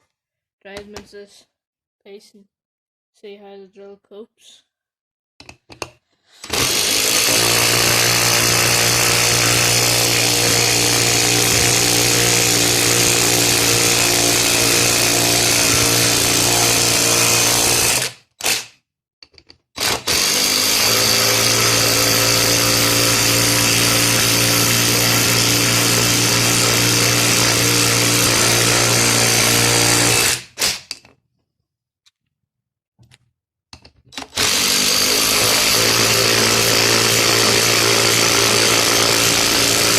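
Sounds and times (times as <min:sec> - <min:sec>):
impact driver driving screws into wood: 0:05.5 - 0:18.8, 0:19.8 - 0:31.1, 0:34.1 - 0:39.9.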